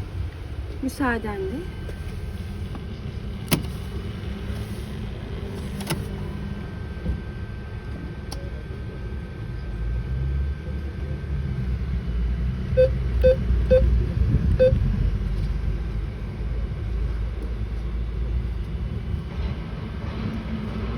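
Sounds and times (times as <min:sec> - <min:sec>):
street traffic rumble: 0:00.0 - 0:20.9
keypad beeps: 0:12.8 - 0:13.9, 0:14.6 - 0:14.8.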